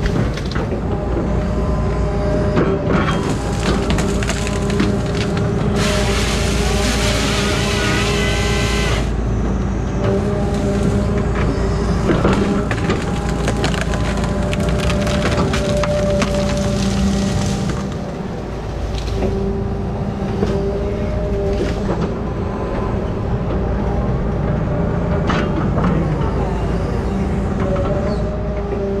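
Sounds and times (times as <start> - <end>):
wood and branches crackling: 0.0 - 9.2, 10.1 - 22.9
diesel engine running: 0.0 - 29.0
saw cutting through trunk: 3.0 - 9.2, 10.0 - 19.6.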